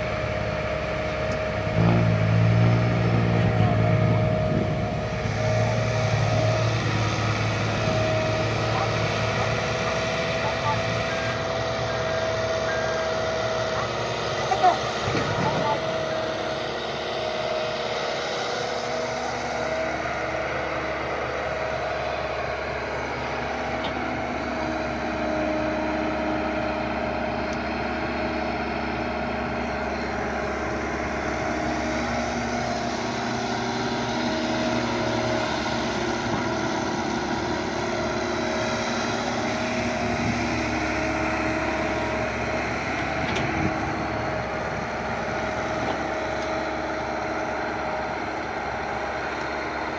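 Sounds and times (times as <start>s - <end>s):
excavator diesel engine droning: 0.0s - 49.9s.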